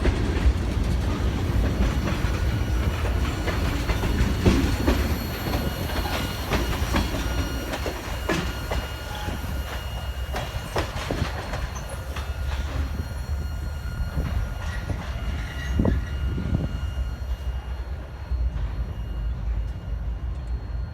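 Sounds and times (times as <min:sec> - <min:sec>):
wheels clanking over rail joints: 0:00.0 - 0:13.4.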